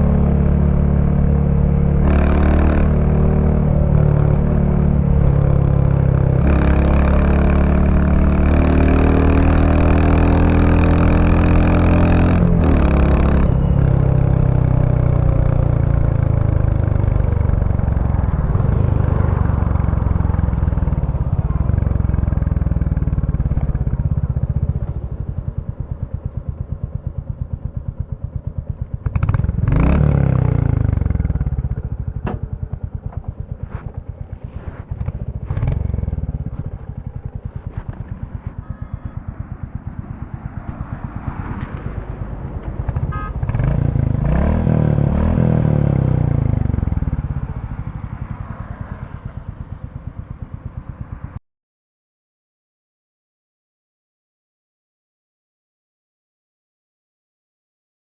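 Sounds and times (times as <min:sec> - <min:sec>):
motorcycle engine accelerating: 0:00.0 - 0:51.4
motorcycle engine idling: 0:13.5 - 0:44.2, 0:44.8 - 0:51.4.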